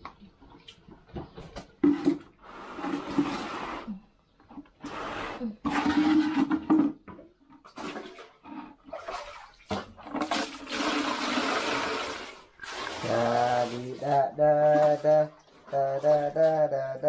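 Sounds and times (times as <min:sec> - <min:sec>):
water sloshing in washing machine: 0:07.5 - 0:16.5.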